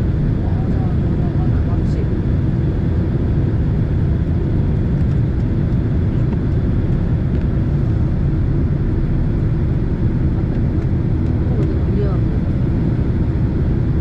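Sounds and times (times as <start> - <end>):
airflow over fuselage: 0.0 - 14.0
jet engines rumbling: 0.0 - 14.0.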